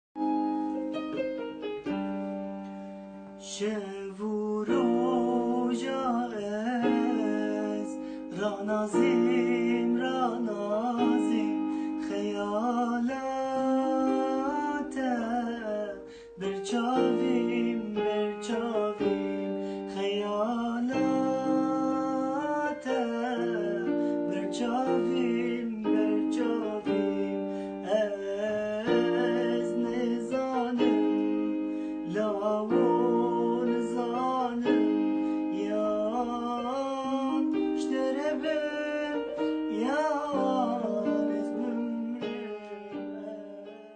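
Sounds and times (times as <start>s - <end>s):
person singing: 0.2s - 43.9s.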